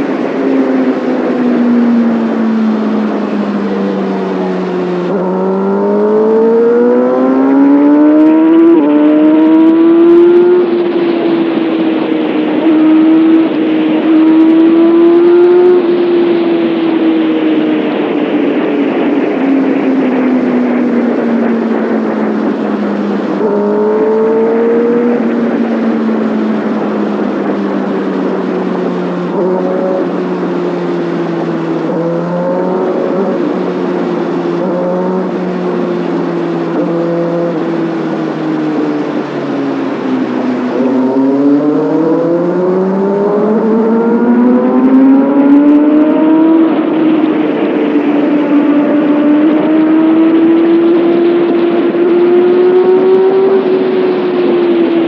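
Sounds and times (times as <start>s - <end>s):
motorcycle engine revving: 0.0s - 17.4s, 18.5s - 55.0s
rushing noise: 0.0s - 55.0s.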